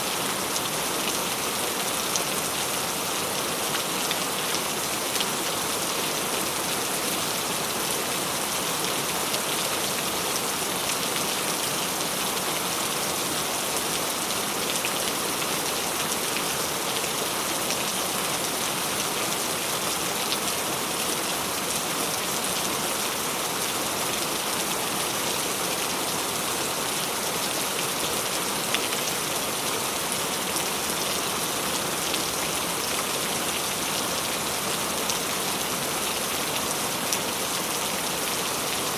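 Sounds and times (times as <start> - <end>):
rain hissing on surfaces: 0.0 - 38.9.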